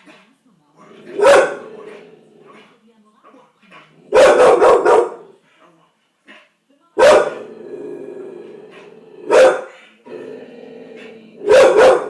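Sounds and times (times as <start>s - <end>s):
dog barking: 1.0s - 2.0s, 4.0s - 5.4s, 7.0s - 7.5s, 9.2s - 9.8s, 11.4s - 12.0s
dog growling low: 7.4s - 9.3s, 10.0s - 11.5s.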